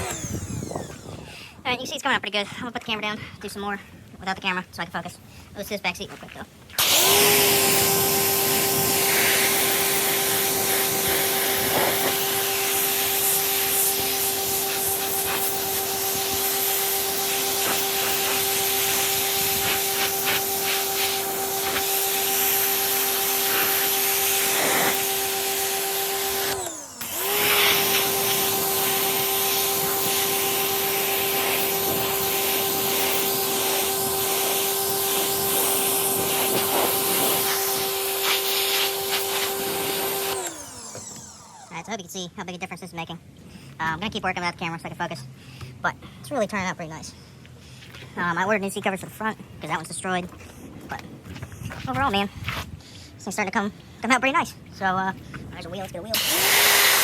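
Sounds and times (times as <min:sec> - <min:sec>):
pressure washer motor: 0:00.0 - 0:01.3, 0:06.8 - 0:42.0, 0:55.8 - 0:57.0
water hissing from spray wand: 0:07.0 - 0:40.3.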